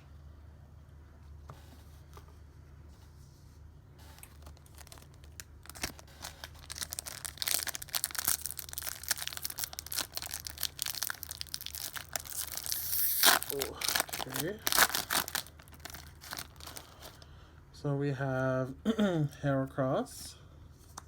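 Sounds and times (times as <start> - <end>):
foil wrapper tearing and crinkling: 4.2 - 17.2.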